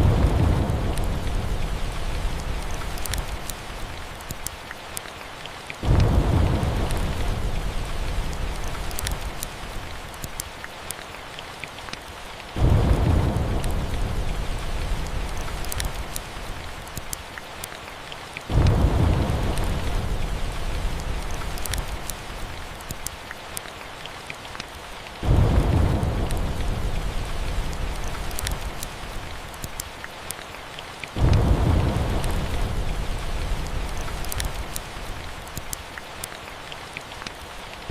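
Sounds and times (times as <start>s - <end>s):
thunder rolling: 0.0s - 3.4s, 5.8s - 9.4s, 12.6s - 16.0s, 18.5s - 22.0s, 25.2s - 28.8s, 31.2s - 34.8s
steady rain: 0.0s - 37.9s
wood fire crackling: 0.0s - 37.9s.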